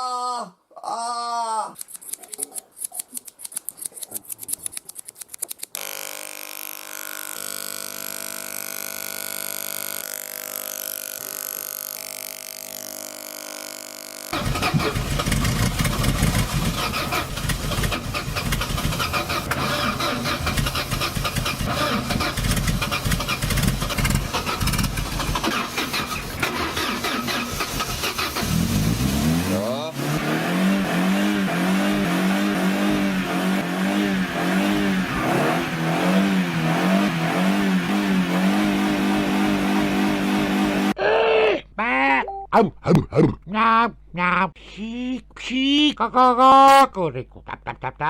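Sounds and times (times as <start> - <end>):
scissors snipping hair: 1.8 - 5.8
electric shaver humming: 5.8 - 14.4
car starter cranking engine: 14.3 - 30.3.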